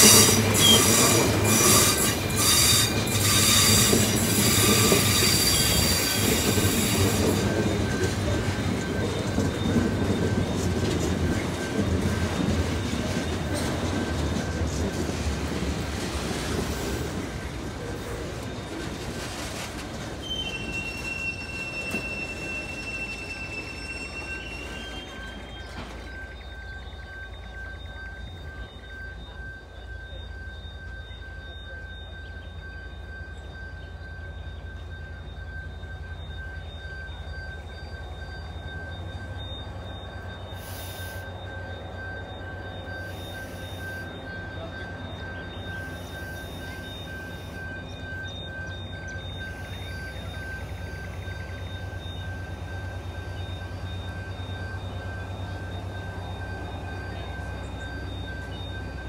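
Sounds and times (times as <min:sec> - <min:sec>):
train deep rumble: 0:00.0 - 0:59.0
thin high whine: 0:20.5 - 0:59.0.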